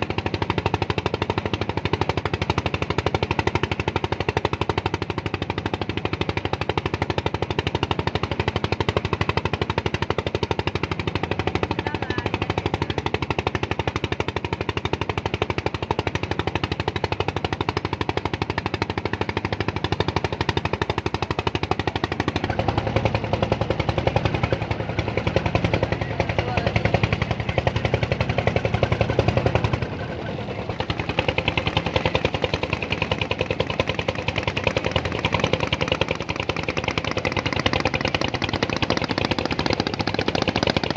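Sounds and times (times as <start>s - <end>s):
engine chugging: 0.0s - 40.9s.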